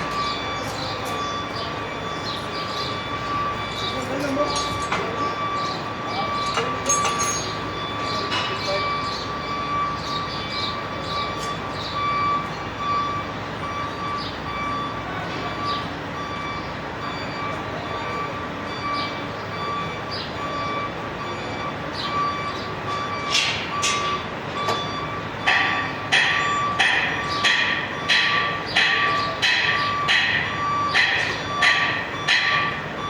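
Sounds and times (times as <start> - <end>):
pulsing electronic beep: 0.0 - 28.2
hammer ringing on metal: 25.5 - 32.9.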